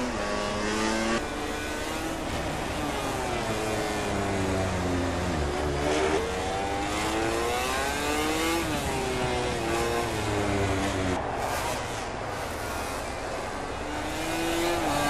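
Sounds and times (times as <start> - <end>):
racing motorcycle engines revving: 0.0 - 15.0.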